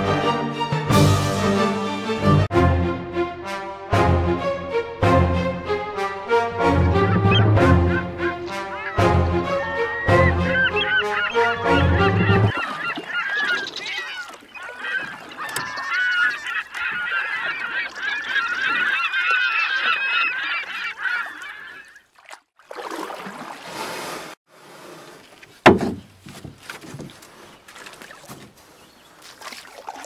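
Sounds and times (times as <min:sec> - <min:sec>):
honking squawking animal calls: 0:06.3 - 0:22.0.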